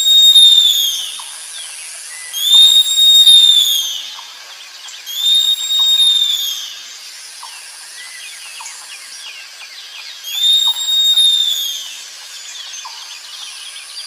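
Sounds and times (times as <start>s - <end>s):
sloth high-pitched whistling call: 0.0s - 4.3s, 5.0s - 6.8s, 10.2s - 12.0s
small chirps and ticks: 3.9s - 14.0s.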